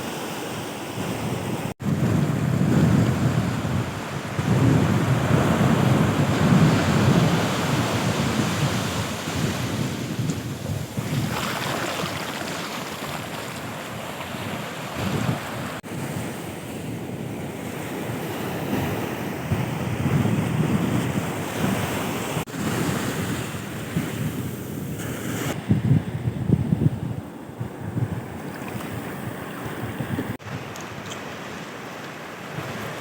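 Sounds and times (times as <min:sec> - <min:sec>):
sea surf: 0:00.0 - 0:26.2, 0:27.2 - 0:33.0
wind buffeting microphone: 0:01.0 - 0:31.6.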